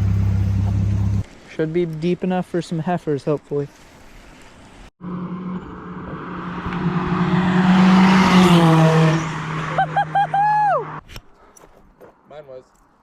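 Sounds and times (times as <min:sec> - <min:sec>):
vehicle passing by: 0:05.0 - 0:11.0.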